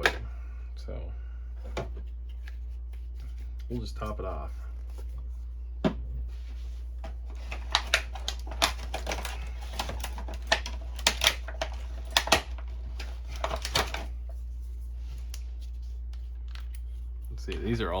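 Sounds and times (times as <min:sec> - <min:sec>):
steady low hum: 0:00.0 - 0:18.0
plastic parts clicking: 0:07.3 - 0:14.1.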